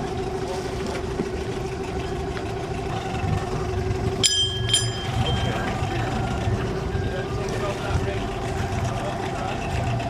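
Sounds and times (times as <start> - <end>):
boat engine running: 0.0 - 10.0
sharp metallic clinks: 4.2 - 5.9.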